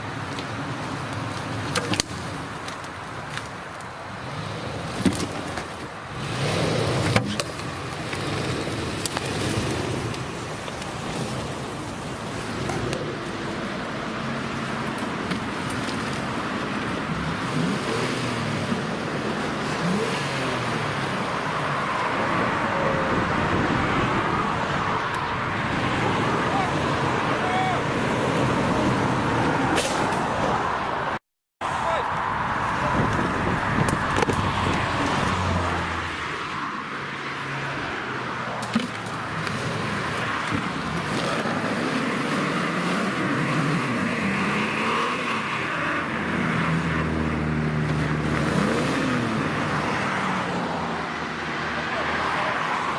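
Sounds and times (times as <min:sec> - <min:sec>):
engine revving: 0:06.1 - 0:13.7, 0:17.1 - 0:30.6, 0:38.7 - 0:52.9.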